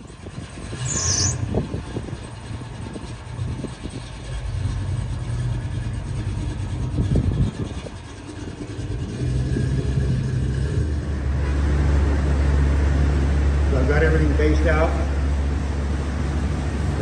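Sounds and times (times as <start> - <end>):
car engine passing slowly: 0.0 - 17.0.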